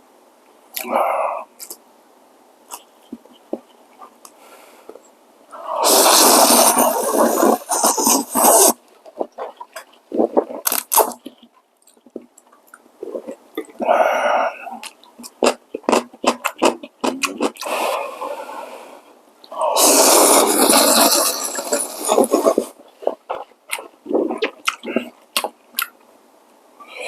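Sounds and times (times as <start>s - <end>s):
noodles slurped: 5.6s - 12.0s, 13.0s - 18.6s, 19.5s - 25.9s
chewing and mouth smacks: 14.8s - 17.7s, 22.4s - 26.0s.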